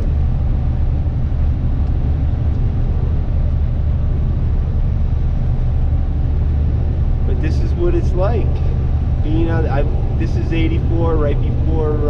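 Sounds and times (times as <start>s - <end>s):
truck engine and tyre drone: 0.0s - 12.0s.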